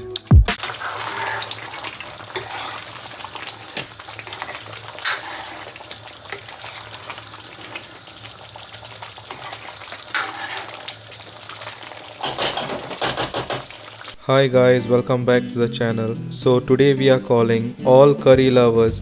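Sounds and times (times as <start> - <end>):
food sizzling in hot oil: 0.6 - 14.2.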